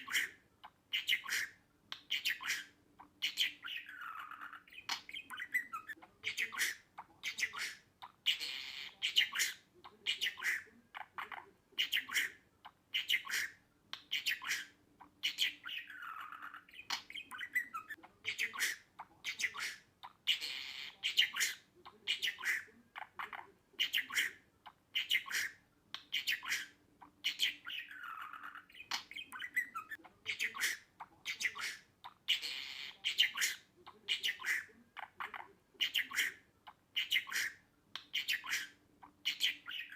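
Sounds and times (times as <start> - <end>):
budgerigar chirping and chattering: 0.0 - 39.9.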